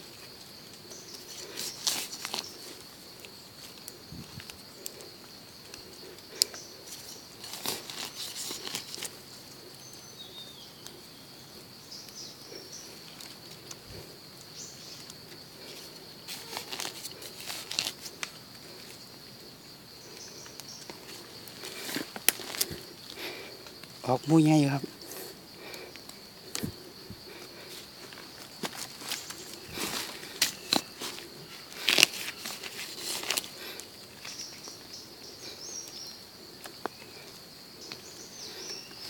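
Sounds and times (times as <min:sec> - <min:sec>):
dry leaves rustling: 0:00.1 - 0:09.2, 0:12.5 - 0:19.0, 0:20.3 - 0:34.7.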